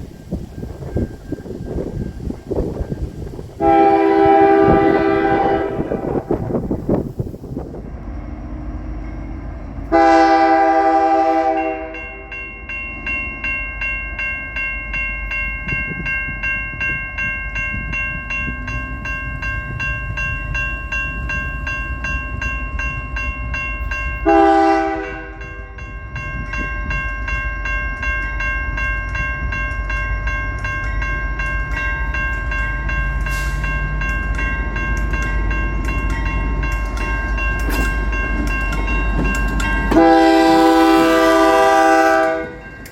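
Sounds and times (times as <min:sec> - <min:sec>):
train rumbling: 0:00.0 - 0:42.9
train horn blasts: 0:03.6 - 0:06.7, 0:09.9 - 0:12.4, 0:24.2 - 0:25.8, 0:39.9 - 0:42.9.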